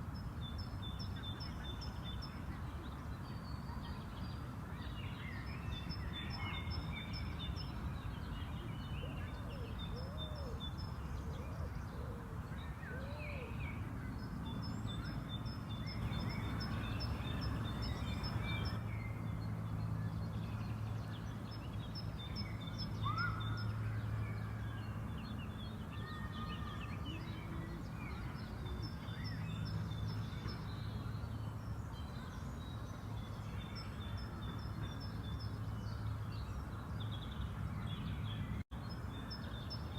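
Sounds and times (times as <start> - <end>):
birds singing and chirping: 0.4 - 39.9
low background hum: 16.0 - 20.8.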